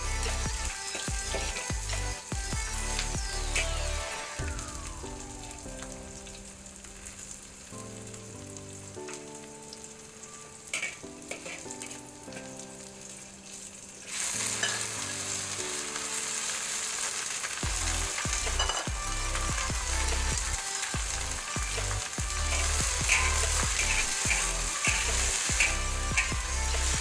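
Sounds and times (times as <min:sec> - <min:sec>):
food sizzling in hot oil: 0:00.0 - 0:27.0
soft background music: 0:00.0 - 0:27.0
metal spatula scraping a wok: 0:10.8 - 0:11.8, 0:22.5 - 0:26.9.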